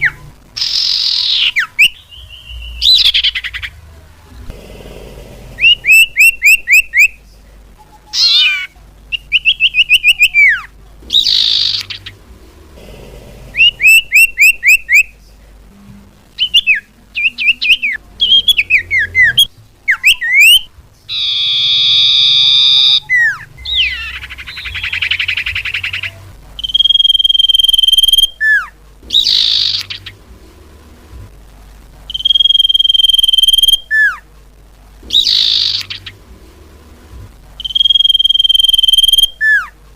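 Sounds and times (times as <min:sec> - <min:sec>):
bird whistling and chirping: 0:00.0 - 0:03.7, 0:05.6 - 0:07.2, 0:08.1 - 0:12.1, 0:13.6 - 0:15.1, 0:16.4 - 0:30.1, 0:32.1 - 0:34.2, 0:35.1 - 0:36.2, 0:37.6 - 0:39.7
buzzy bird call: 0:00.0 - 0:03.8, 0:05.4 - 0:07.2, 0:07.8 - 0:12.8, 0:13.4 - 0:15.2, 0:16.4 - 0:30.3, 0:35.0 - 0:36.3, 0:37.6 - 0:39.8
harsh rasping bird calls: 0:00.0 - 0:03.9, 0:04.6 - 0:07.2, 0:07.8 - 0:15.2, 0:16.4 - 0:30.4, 0:35.0 - 0:36.4.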